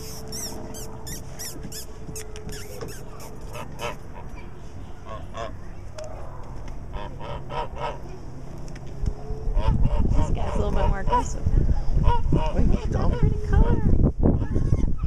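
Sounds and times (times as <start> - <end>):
geese honking: 2.7 - 4.4, 6.9 - 8.0.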